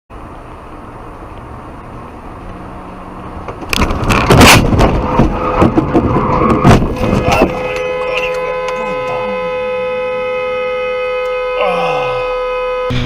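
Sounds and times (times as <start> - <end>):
car road and engine noise: 0.1 - 13.0
car collision bangs and crunching: 3.5 - 7.9.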